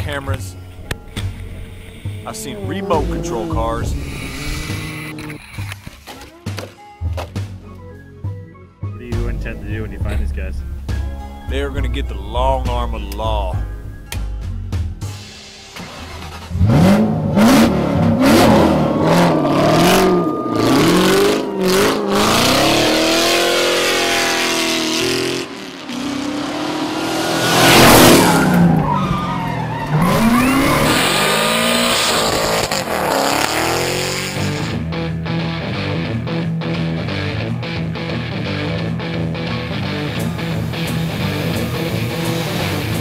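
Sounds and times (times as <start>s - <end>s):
engines revving: 0.8s - 5.8s, 15.8s - 35.0s, 39.4s - 43.0s
tyres screeching: 0.9s - 6.3s, 27.6s - 34.7s.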